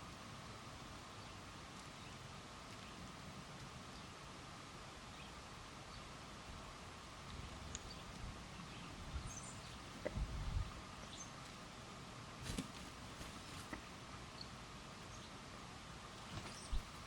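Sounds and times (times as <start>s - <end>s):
outdoor background noise: 0.0s - 17.0s
faint bird chirps: 7.4s - 10.3s, 16.2s - 17.0s.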